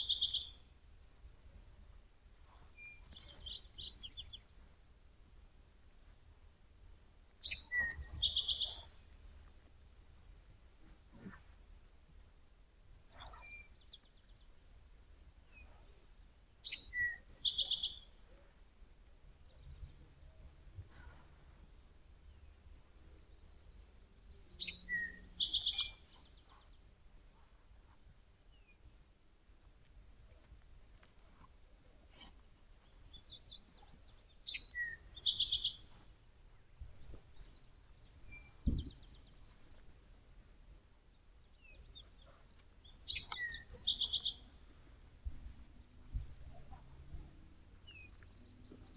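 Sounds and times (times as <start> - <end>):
songbird chirping and trilling: 0.0 - 0.8, 2.4 - 4.6, 7.4 - 9.1, 15.2 - 18.4, 22.0 - 26.9, 31.8 - 39.8, 41.1 - 44.7, 46.1 - 48.9
soft rustle: 8.8 - 14.4, 20.0 - 23.0, 26.0 - 34.4, 35.6 - 40.8
short low thump: 38.6 - 39.2.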